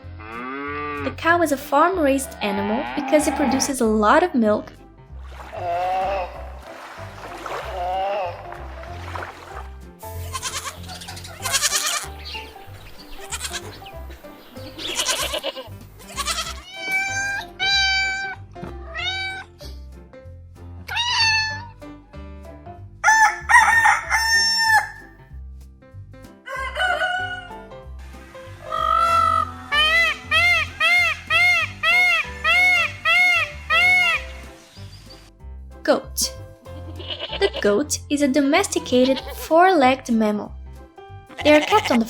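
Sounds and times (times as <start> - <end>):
background music with bass: 0.0 - 42.0
farm animal crying: 2.3 - 3.8, 10.2 - 14.0, 14.6 - 19.5, 20.9 - 21.7, 28.6 - 34.3, 36.8 - 37.6, 41.3 - 42.0.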